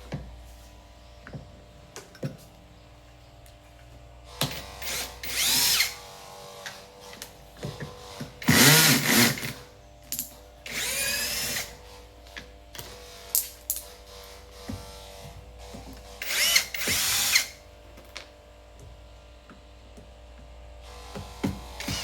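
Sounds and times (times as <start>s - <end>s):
power drill whining: 4.3s - 6.9s, 7.8s - 9.6s, 10.7s - 11.9s, 14.2s - 17.6s, 20.9s - 22.0s.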